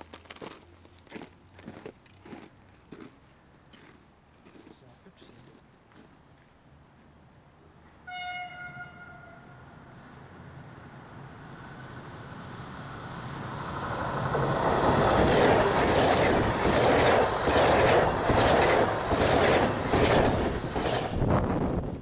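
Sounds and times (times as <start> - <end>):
train rushing past: 8.6 - 22.0
wheels clattering over rail joints: 14.2 - 22.0.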